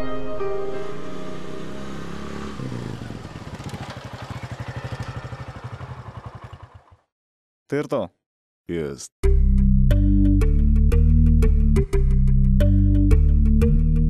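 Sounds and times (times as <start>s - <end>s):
piano music: 0.0s - 2.6s
small engine idling: 1.4s - 7.1s.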